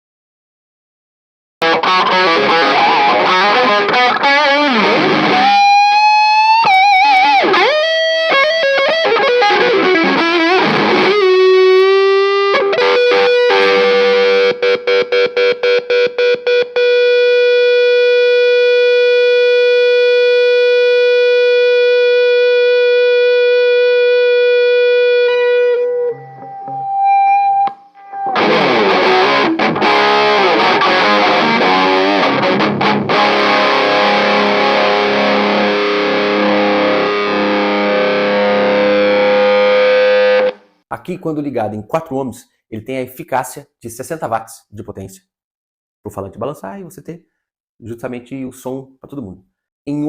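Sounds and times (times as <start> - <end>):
distorted electric guitar: 1.6 - 40.8.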